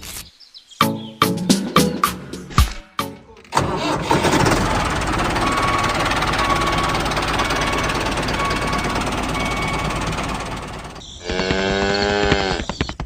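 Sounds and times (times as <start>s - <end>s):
engine running with clatter: 3.5s - 11.0s.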